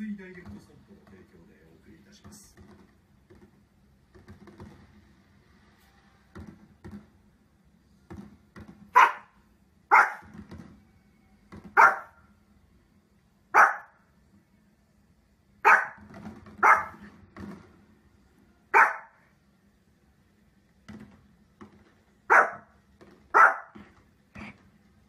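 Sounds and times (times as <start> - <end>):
small dog barking: 8.9 - 10.3, 11.7 - 12.2, 13.5 - 14.0, 15.6 - 17.0, 18.7 - 19.2, 22.3 - 22.7, 23.3 - 23.8.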